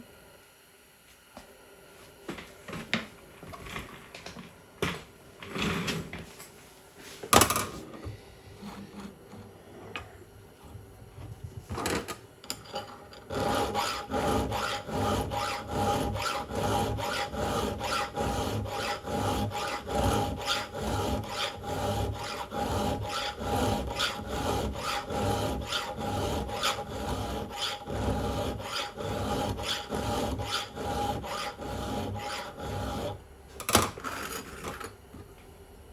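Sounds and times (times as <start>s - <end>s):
file strokes on saw chain: 13.3s - 33.2s.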